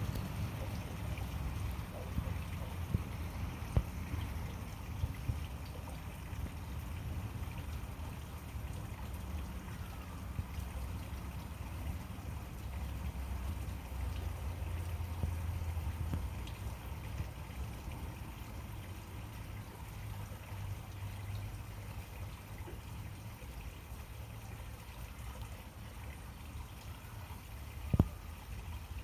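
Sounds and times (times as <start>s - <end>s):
steady low rumble: 0.0s - 17.3s
faint outdoor background noise: 0.0s - 29.0s.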